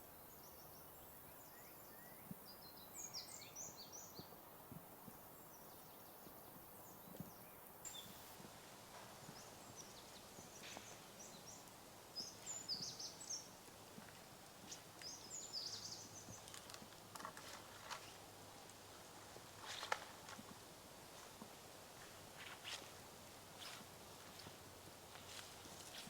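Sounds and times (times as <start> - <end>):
small birds chirping: 5.0 - 18.4
faint rustling: 7.9 - 26.0
small crackles: 12.4 - 26.0.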